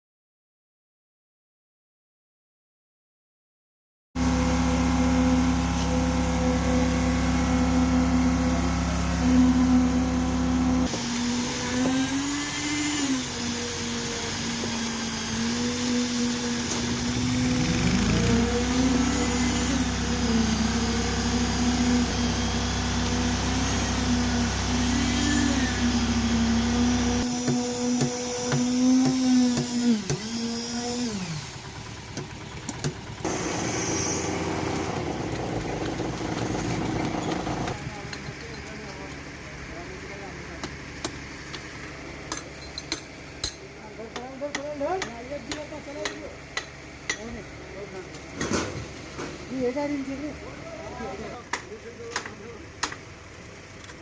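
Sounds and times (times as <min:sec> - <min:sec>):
high-pitched motor: 0:04.2 - 0:31.8, 0:33.2 - 0:35.1
small engine humming: 0:04.2 - 0:40.4.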